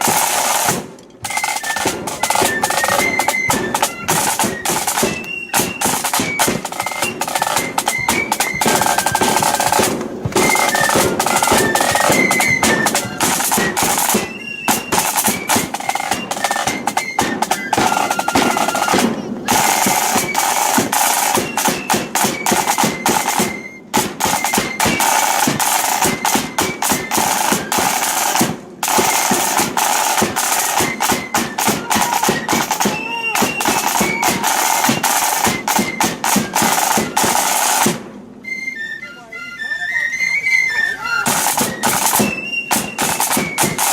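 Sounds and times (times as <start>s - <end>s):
side drums rattling: 0.0s - 38.2s, 41.2s - 43.9s
high flute melody: 0.0s - 43.9s.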